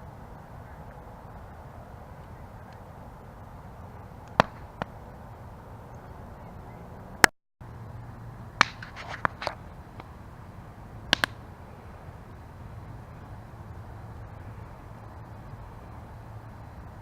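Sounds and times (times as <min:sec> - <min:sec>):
campfire low rustle: 0:00.0 - 0:17.0
fire crackles and pops: 0:01.3 - 0:05.6, 0:08.5 - 0:16.2.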